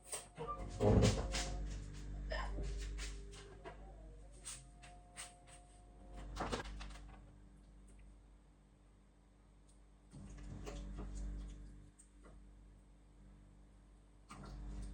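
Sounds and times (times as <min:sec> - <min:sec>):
faint ringing tone: 0:02.6 - 0:06.4.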